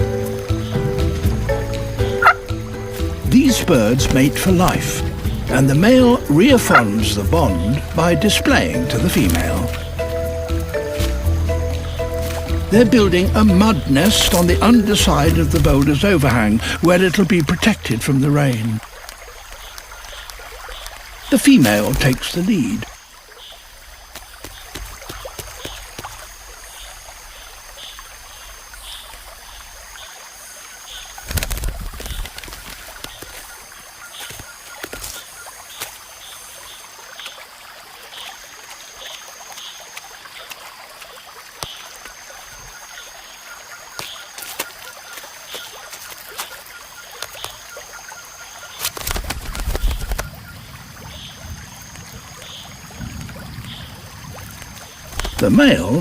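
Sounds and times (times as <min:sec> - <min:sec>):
insect chirping: 0:00.0 - 0:56.0
clicks and drips: 0:13.5 - 0:26.9, 0:31.2 - 0:50.4, 0:51.9 - 0:56.0.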